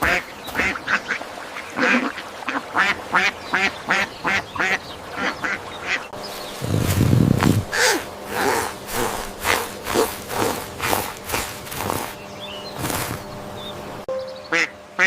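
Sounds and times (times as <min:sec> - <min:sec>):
duck quacking: 0:14.5 - 0:15.0.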